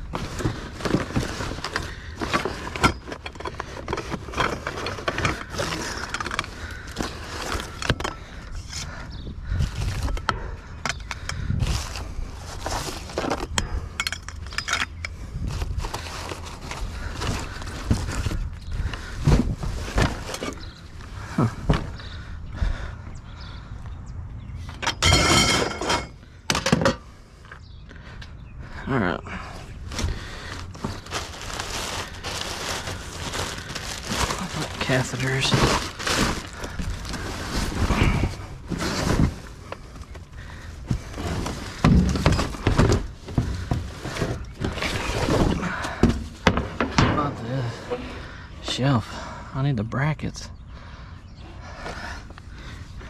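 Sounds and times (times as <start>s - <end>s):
objects knocking and clunking: 0.0s - 9.0s, 24.7s - 27.1s, 37.8s - 48.3s
junk being rummaged through: 0.0s - 22.9s, 24.7s - 27.1s, 28.7s - 49.3s
metal rattling scrape: 24.8s - 26.2s.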